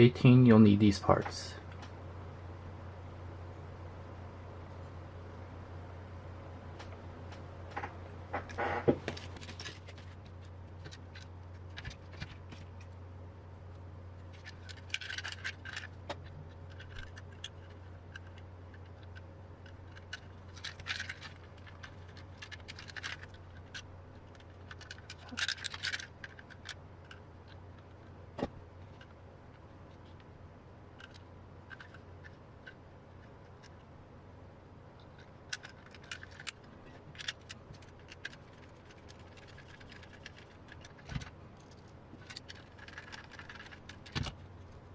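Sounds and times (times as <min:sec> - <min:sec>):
steady low hum: 0:00.0 - 0:44.9
small metal parts clicking and rattling: 0:08.5 - 0:13.0, 0:14.2 - 0:28.1, 0:30.9 - 0:33.9, 0:35.0 - 0:44.9.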